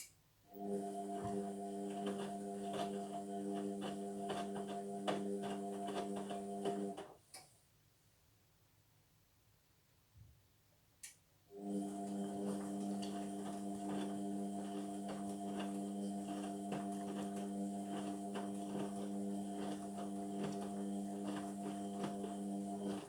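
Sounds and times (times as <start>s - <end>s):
washing machine drain pump humming: 0.5s - 7.0s, 11.5s - 23.0s.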